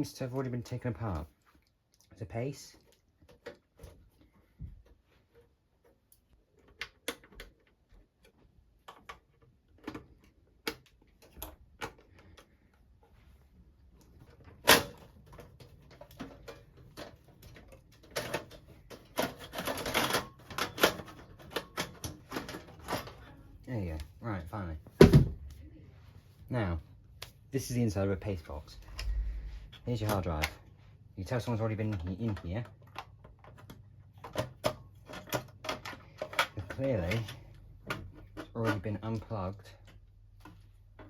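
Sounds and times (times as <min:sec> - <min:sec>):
rattling clatter of cover: 0:14.5 - 0:23.3.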